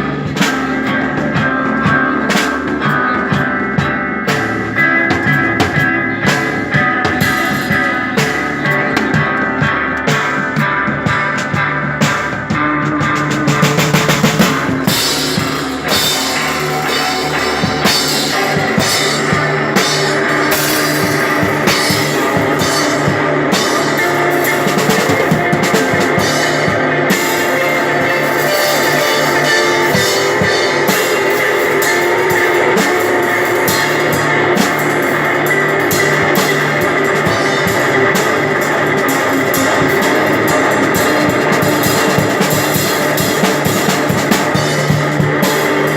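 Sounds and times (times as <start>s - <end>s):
drum and cymbal strikes: 0.0s - 45.9s
sustained electric guitar: 0.0s - 45.9s.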